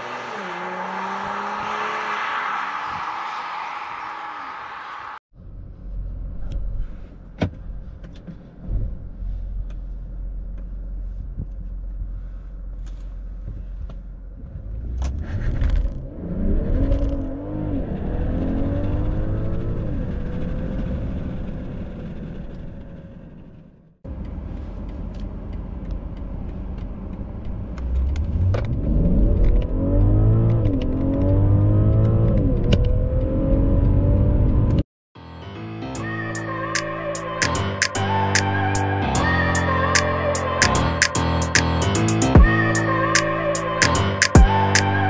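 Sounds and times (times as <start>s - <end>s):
car engine accelerating: 0.0s - 6.9s, 12.8s - 35.7s.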